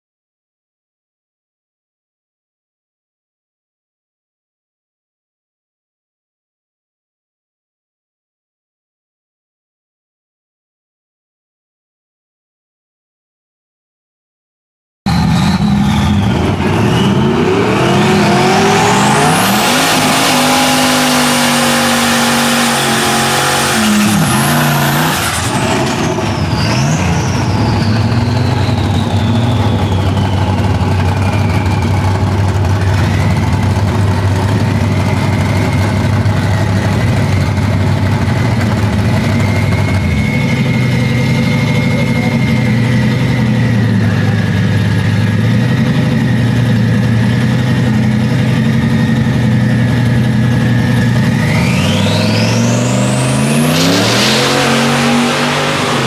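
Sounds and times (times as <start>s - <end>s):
car engine revving: 15.1s - 56.0s
turbo whine: 15.1s - 56.0s
car engine idling: 27.2s - 51.9s.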